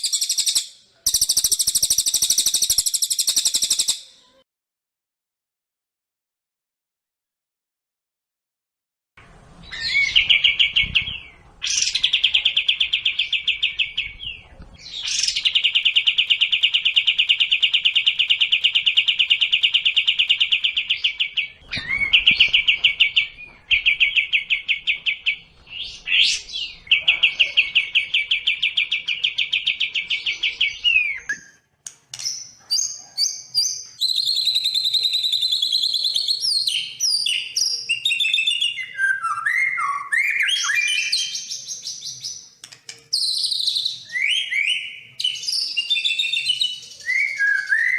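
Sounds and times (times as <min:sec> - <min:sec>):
songbird trills: 0:00.0 - 0:04.4.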